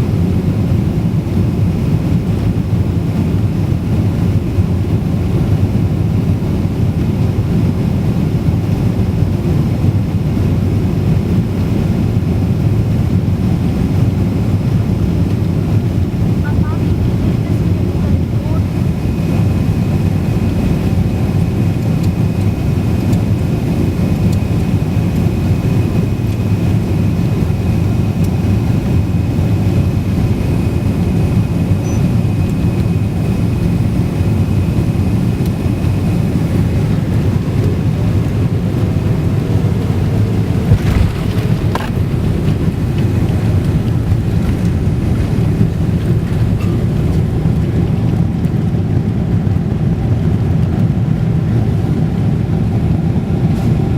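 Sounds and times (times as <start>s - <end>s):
aircraft engine and airflow rumble: 0.0s - 53.9s
brief thuds: 40.6s - 42.8s.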